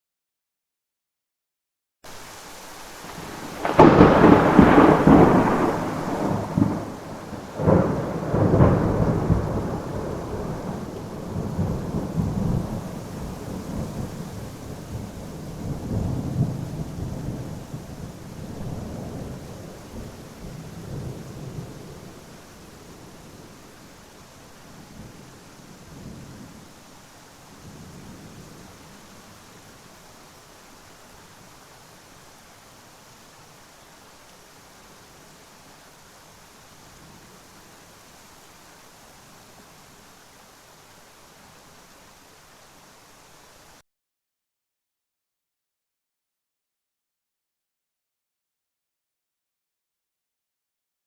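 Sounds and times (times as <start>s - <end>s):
rain hiss: 2.1s - 43.8s
thunderclap with low rumble: 3.0s - 22.0s.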